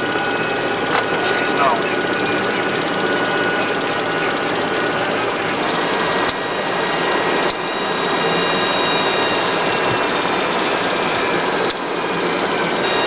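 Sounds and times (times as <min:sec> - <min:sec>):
high whining tones: 0:00.0 - 0:13.0
rough machine hum: 0:00.0 - 0:13.0.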